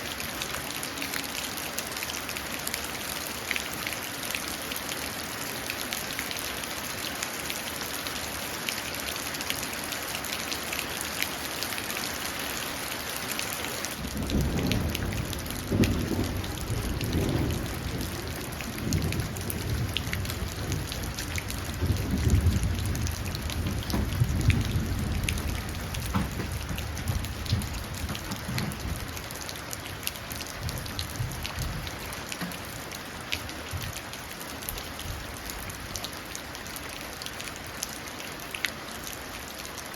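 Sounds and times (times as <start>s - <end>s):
rain falling into a puddle: 0.0s - 39.9s
thunder rolling: 14.0s - 29.2s.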